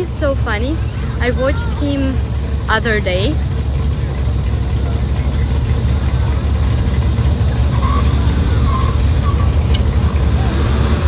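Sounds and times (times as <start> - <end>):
car engines idling: 0.0 - 11.0.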